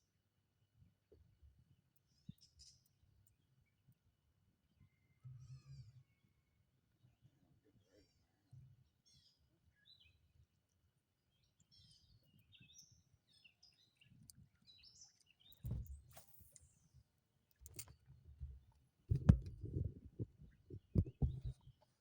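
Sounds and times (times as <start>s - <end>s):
small birds chirping: 7.8s - 10.7s, 11.3s - 22.0s
low knocks and thumps: 15.6s - 16.1s, 18.4s - 21.8s.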